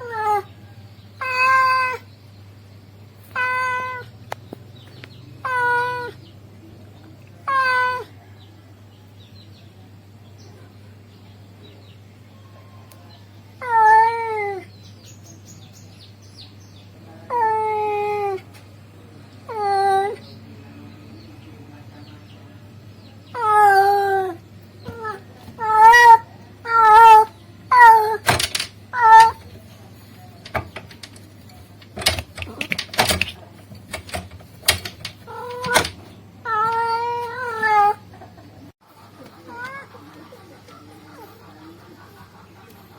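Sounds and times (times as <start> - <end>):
cat meowing: 1.2 - 2.0, 3.3 - 4.1, 23.4 - 29.5, 34.1 - 38.0
sharp clicks and knocks: 28.2 - 29.6, 30.4 - 36.1.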